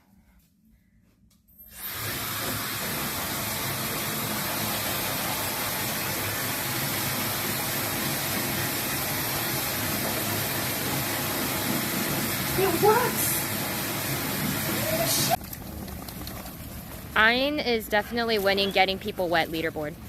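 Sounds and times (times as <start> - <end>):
pet dryer blowing: 1.7 - 15.4.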